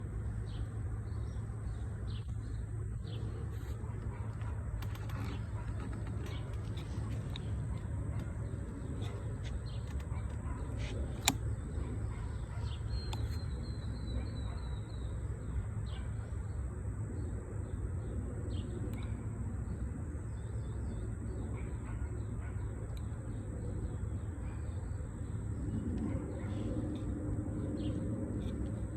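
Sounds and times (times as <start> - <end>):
birds chirping: 0.0 - 28.9
sharp click: 9.0 - 11.7.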